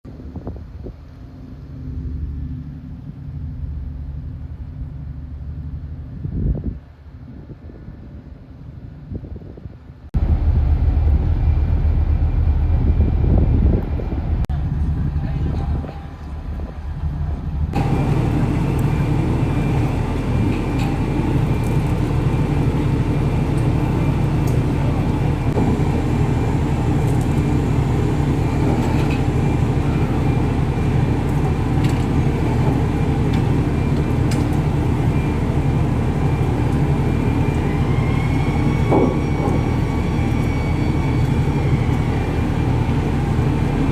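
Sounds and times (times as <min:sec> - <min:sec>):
faint rising whine: 0:10.2 - 0:15.1, 0:16.2 - 0:43.9
boat engines droning: 0:10.2 - 0:43.9.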